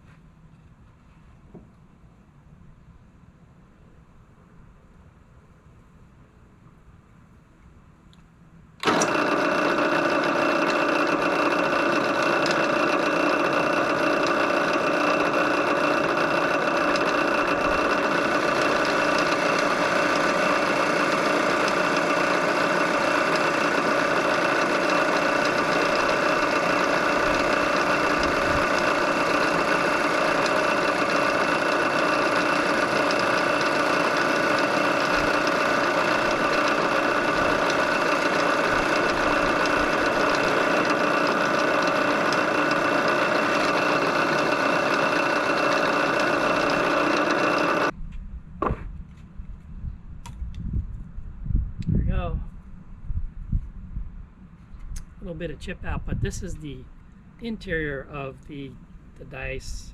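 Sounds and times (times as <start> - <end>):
drill bit drilling through wood: 8.8 - 47.9
drill press motor whining: 8.8 - 47.9.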